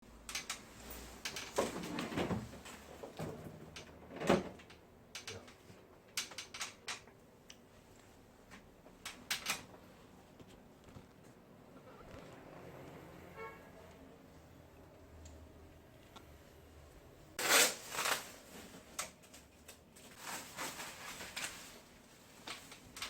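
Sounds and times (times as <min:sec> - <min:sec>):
hard objects clicking and knocking: 0:01.2 - 0:07.2.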